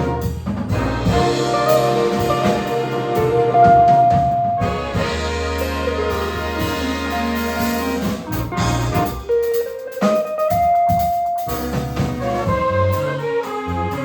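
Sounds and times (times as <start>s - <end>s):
jazz band playing: 0.0s - 14.0s.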